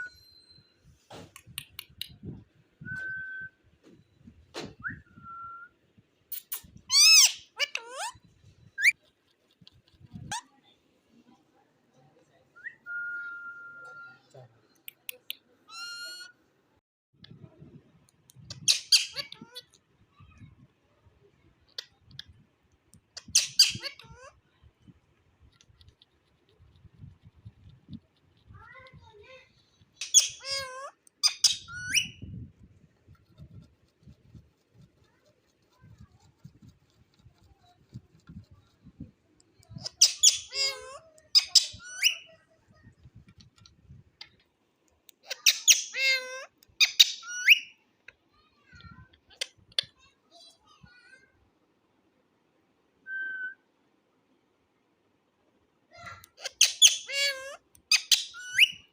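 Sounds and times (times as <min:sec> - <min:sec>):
parakeet squawking: 0:30.0 - 0:32.2, 0:39.8 - 0:42.3, 0:45.2 - 0:47.6, 0:56.4 - 0:58.8.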